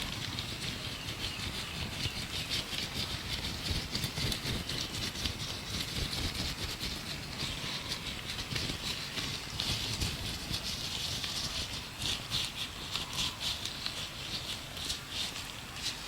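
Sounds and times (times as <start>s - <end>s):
birds chirping: 0.0s - 5.3s, 6.0s - 16.0s
gloved hands rubbing and crinkling: 0.0s - 16.0s.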